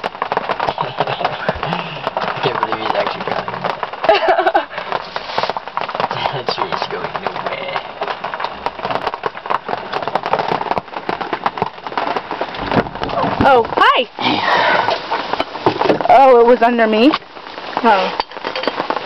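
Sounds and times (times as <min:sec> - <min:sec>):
tree being dragged: 0:00.0 - 0:19.0.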